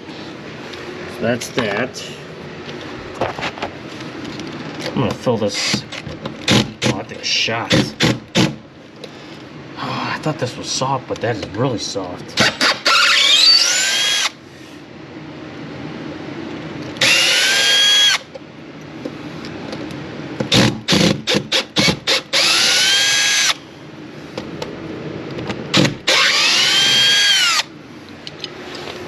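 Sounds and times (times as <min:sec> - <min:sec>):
power drill whirring: 0:12.4 - 0:14.4, 0:17.0 - 0:18.2, 0:20.5 - 0:23.6, 0:25.7 - 0:27.7.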